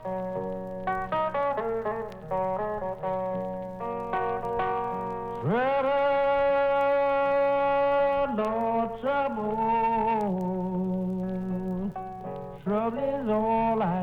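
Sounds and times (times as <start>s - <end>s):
fingerpicked acoustic blues guitar: 0.0s - 14.0s.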